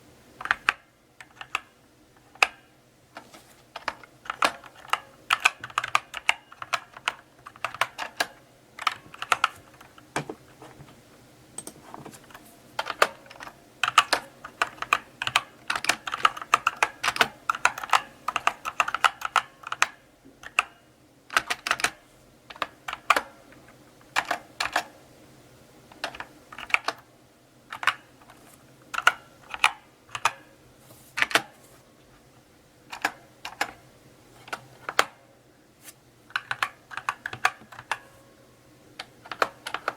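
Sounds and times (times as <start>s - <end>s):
mechanical keyboard typing: 0.4s - 2.7s, 3.7s - 10.0s, 11.6s - 23.4s, 24.0s - 24.9s, 25.9s - 27.1s, 27.7s - 30.5s, 32.9s - 33.8s, 36.3s - 38.0s, 39.0s - 39.9s.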